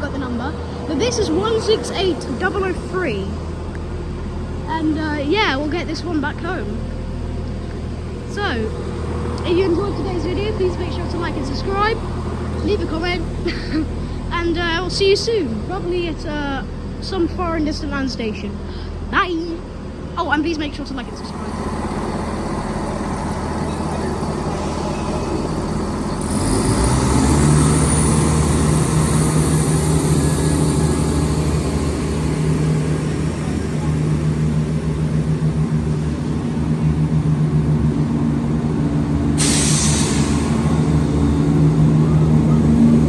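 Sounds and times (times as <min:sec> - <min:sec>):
diesel train engines idling: 0:00.0 - 0:43.0
air hiss: 0:39.4 - 0:41.0.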